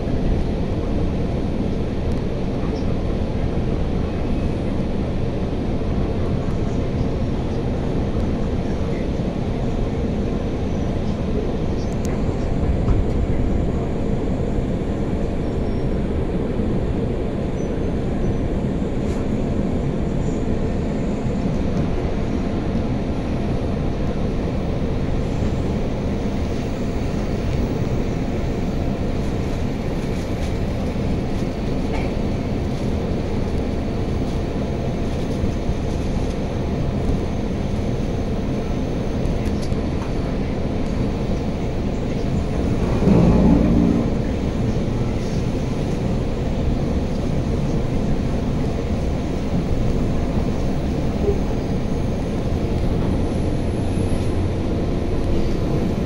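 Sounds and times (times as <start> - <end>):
train rumbling on rails: 0.0 - 56.0.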